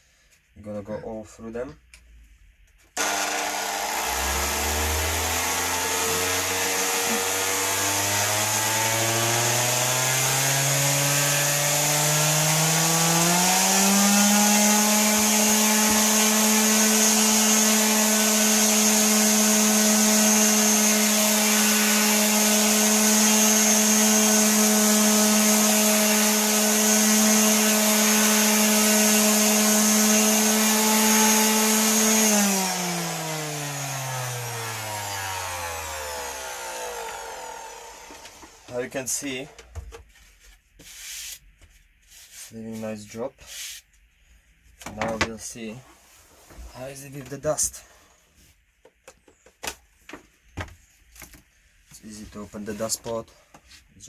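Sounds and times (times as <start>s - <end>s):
orbital sander on wood: 3.0s - 39.6s.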